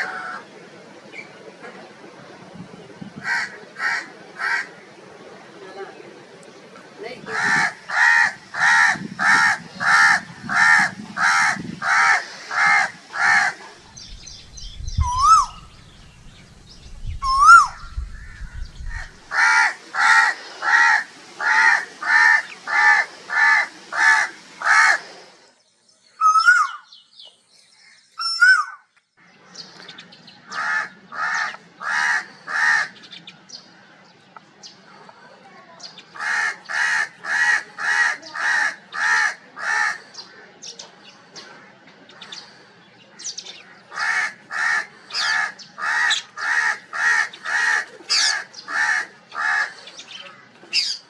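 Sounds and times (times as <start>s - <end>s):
crows cawing: 3.2s - 4.7s, 7.3s - 13.6s, 14.2s - 16.0s, 17.2s - 25.0s, 30.5s - 33.0s, 36.2s - 40.1s, 43.9s - 50.4s.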